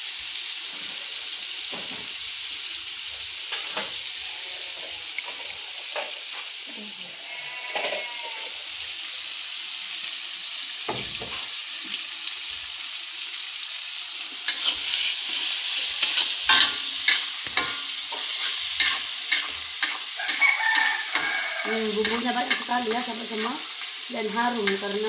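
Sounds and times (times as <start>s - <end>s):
paste sizzling in hot oil: 0.0s - 25.0s
metal spatula scraping a wok: 14.5s - 25.0s.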